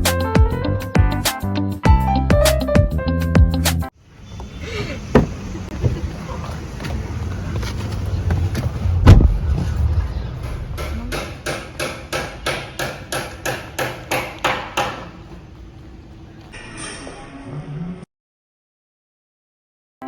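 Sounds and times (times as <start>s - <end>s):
sharp knocks: 5.2s - 6.0s, 10.4s - 15.2s
low rumble: 7.0s - 11.7s
heavy knock: 10.4s - 15.1s.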